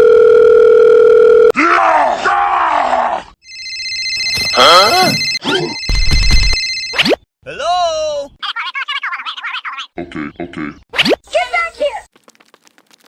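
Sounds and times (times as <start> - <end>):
electronic telephone ring: 0.0 - 1.5, 3.5 - 7.0
electronic beep: 4.4 - 7.2.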